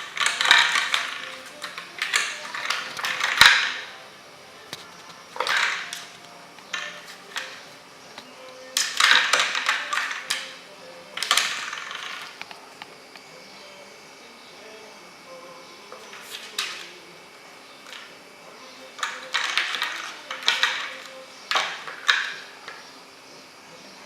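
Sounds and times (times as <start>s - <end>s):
toy mouse rattling and scraping: 0.0s - 4.0s, 4.7s - 7.7s, 8.3s - 12.6s, 17.8s - 22.9s.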